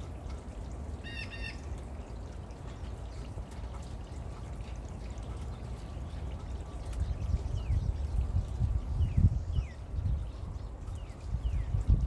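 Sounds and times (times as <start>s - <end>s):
bird chirp: 5.0s - 12.0s.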